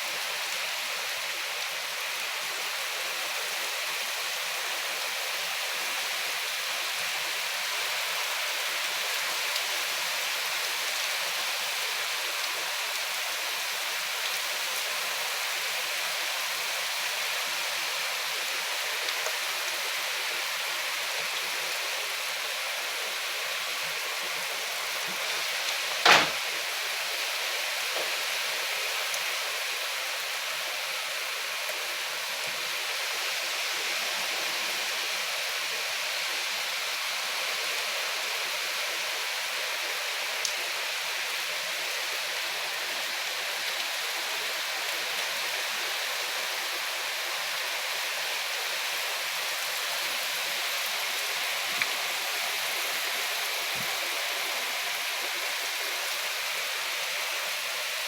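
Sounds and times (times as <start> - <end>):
steady rain falling: 0.0 - 58.0
sharp knock: 26.1 - 26.4.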